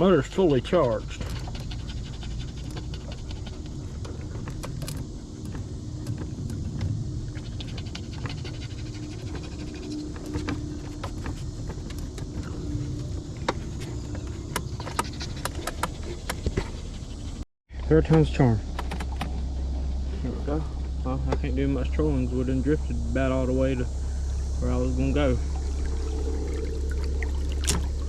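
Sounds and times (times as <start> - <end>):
dog panting: 0.0 - 6.3, 7.2 - 17.5
steady low rumble: 0.0 - 28.0.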